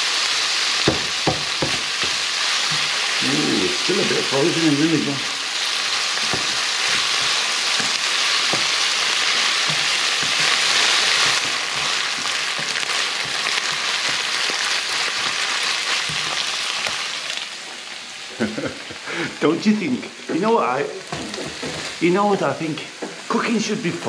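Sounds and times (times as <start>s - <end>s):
meat and onion sizzling in a pan: 0.0s - 24.0s
wooden spatula scraping a pan: 1.7s - 3.1s, 5.9s - 17.2s, 21.0s - 22.0s.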